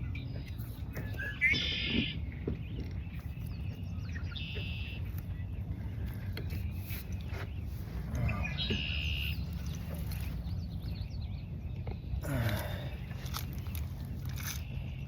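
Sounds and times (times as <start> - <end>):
faint bird chirps: 0.2 - 13.0
bird call: 1.0 - 2.6, 4.1 - 5.2, 8.2 - 10.4.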